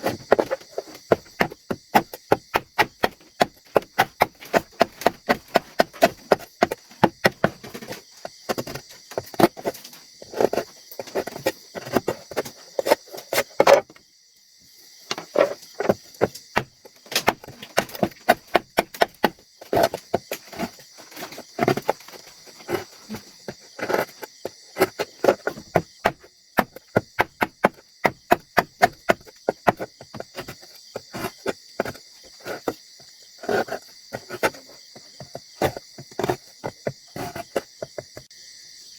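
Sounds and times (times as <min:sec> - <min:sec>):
high-pitched insect chorus: 0:29.2 - 0:38.9.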